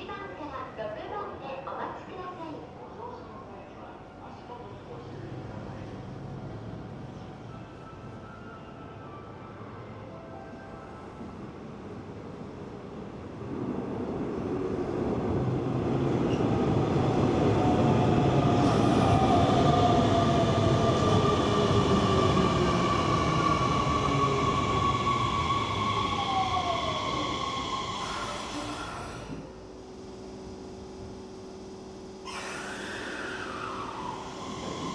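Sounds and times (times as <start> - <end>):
electric train rumble: 10.6 - 34.9
high-pitched whining and squealing: 32.3 - 34.9.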